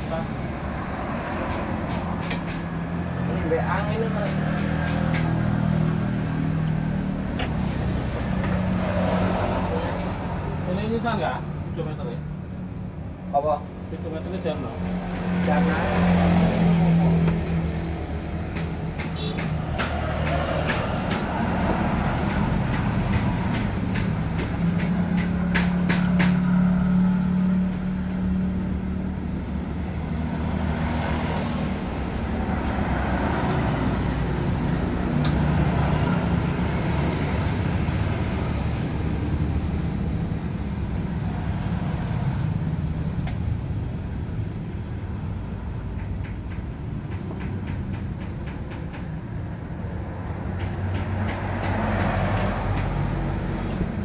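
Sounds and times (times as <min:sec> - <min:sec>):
sharp metallic clicks and knocks: 0:18.3 - 0:26.7, 0:45.8 - 0:49.5, 0:50.4 - 0:54.0.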